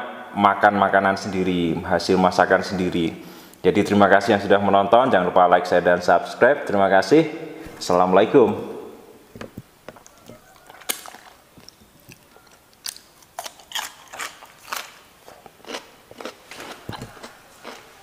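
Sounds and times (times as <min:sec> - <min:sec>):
crunchy chewing of cucumber: 0:10.0 - 0:18.0.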